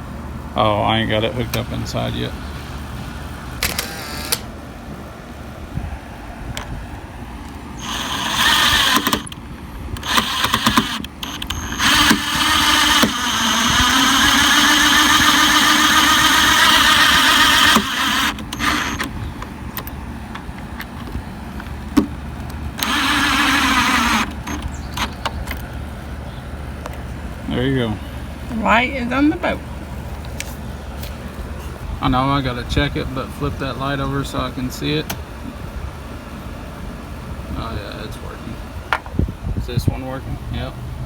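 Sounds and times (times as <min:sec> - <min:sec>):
power drill whining: 0:03.6 - 0:04.5, 0:07.8 - 0:09.4, 0:10.0 - 0:19.1, 0:22.8 - 0:25.3.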